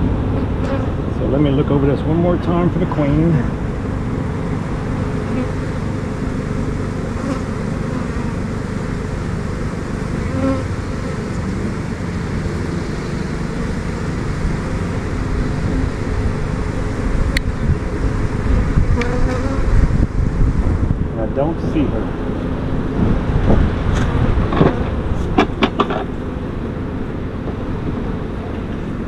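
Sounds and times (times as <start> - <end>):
honeybees buzzing: 0.2 - 1.6, 2.5 - 20.9.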